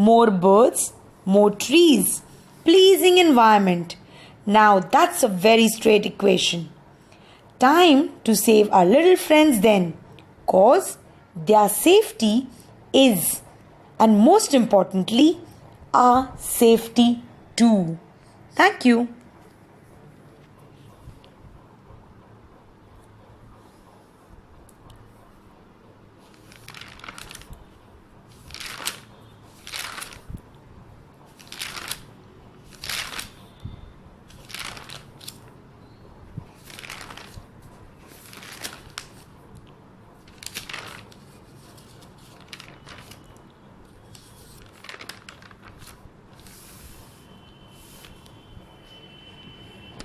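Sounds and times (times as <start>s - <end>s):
rustling and crinkling: 26.2s - 30.5s, 31.3s - 33.5s, 34.3s - 35.5s, 36.4s - 43.4s, 44.1s - 47.2s.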